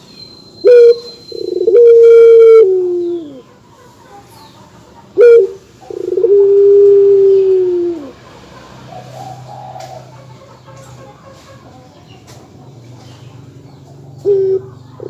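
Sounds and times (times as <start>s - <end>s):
dove cooing: 0.6s - 3.5s, 5.1s - 10.1s, 14.2s - 15.0s.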